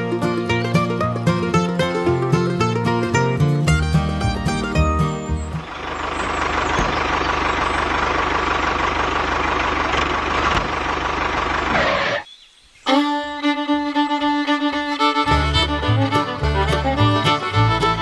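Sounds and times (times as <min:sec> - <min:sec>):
bass beat: 0:00.0 - 0:05.8, 0:15.2 - 0:18.0
fiddle music: 0:00.0 - 0:11.6, 0:12.9 - 0:18.0
small tractor engine running: 0:00.0 - 0:12.2, 0:14.1 - 0:18.0.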